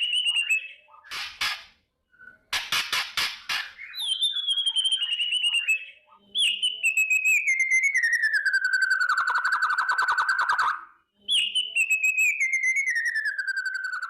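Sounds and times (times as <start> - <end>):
bird rattling trills: 0.0 - 1.8.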